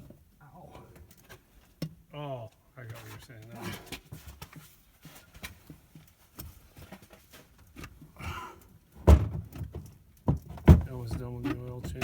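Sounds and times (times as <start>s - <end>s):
person exhaling: 8.2s - 8.6s.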